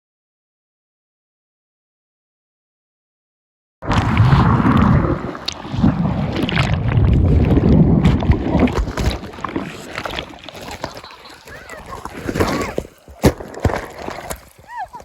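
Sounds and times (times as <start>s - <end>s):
crackles: 3.8s - 15.0s.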